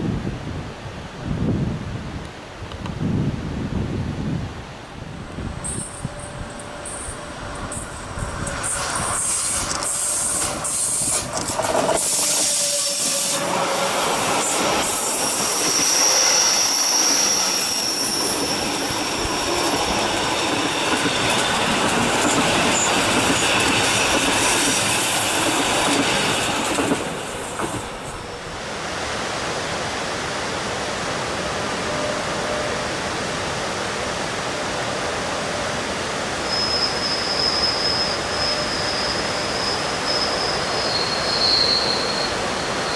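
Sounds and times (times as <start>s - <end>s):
distant train rumble: 2.6s - 42.9s
train wheels clicking over rails: 5.6s - 28.3s
train wheel squeal: 5.6s - 28.4s, 31.8s - 32.8s, 36.3s - 42.9s.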